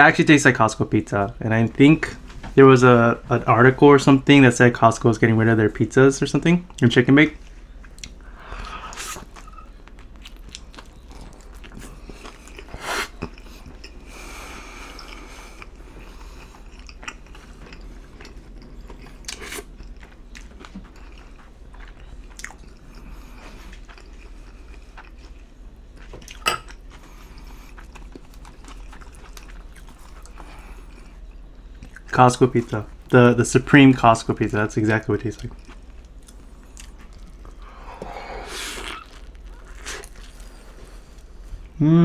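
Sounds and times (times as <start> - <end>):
chewing: 7.4 - 32.1, 35.4 - 41.7
biting into pizza: 36.8 - 40.6.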